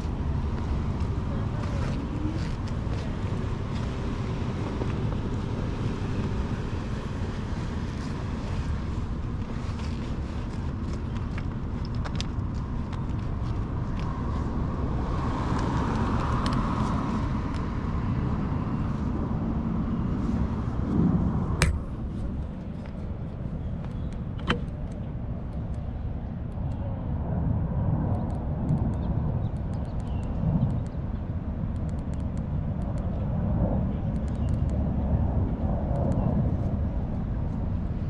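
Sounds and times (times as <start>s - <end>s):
bicycle rumble: 0.0s - 38.0s
traffic passing: 0.0s - 38.0s
sharp clicks: 21.6s - 22.5s, 28.1s - 31.0s, 31.7s - 33.1s, 34.1s - 34.8s.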